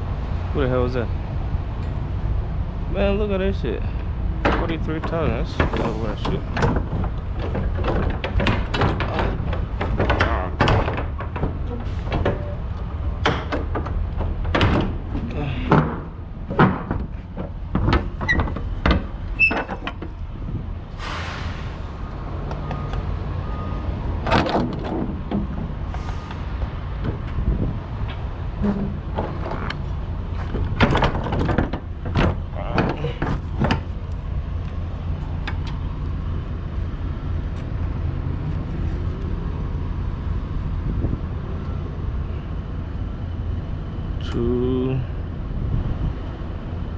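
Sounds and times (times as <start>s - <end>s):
low engine rumble: 0.0s - 46.9s
irregular knocks and clunks: 4.0s - 20.7s, 24.1s - 35.9s.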